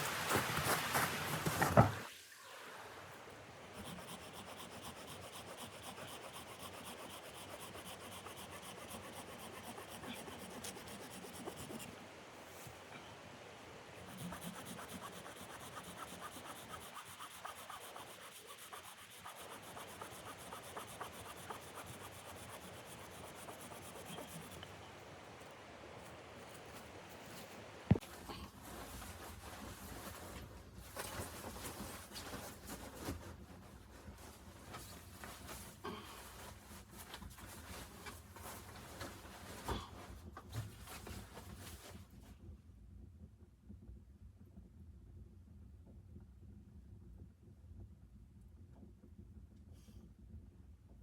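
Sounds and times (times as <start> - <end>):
rasping scraping on wood: 14.0 - 24.7.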